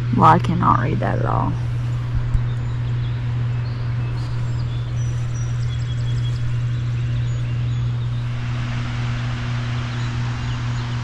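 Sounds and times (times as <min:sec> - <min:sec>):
steady low hum: 0:00.0 - 0:11.0
faint bird chirps: 0:01.8 - 0:08.4.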